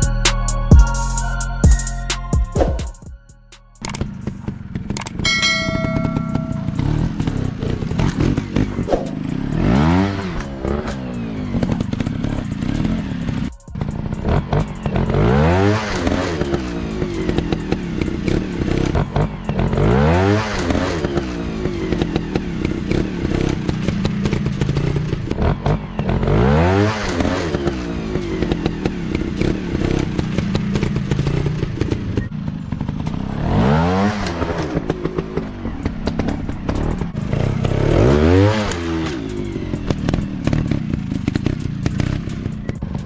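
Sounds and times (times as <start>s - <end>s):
sharp clicks and knocks: 3.8s - 4.1s
dirt bike engines revving: 3.8s - 43.0s.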